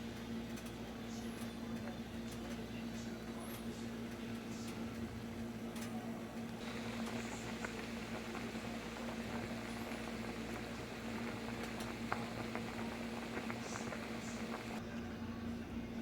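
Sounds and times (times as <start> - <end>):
steady hum: 6.2 - 14.8
small pops: 6.6 - 14.8
soup bubbling: 6.6 - 14.8.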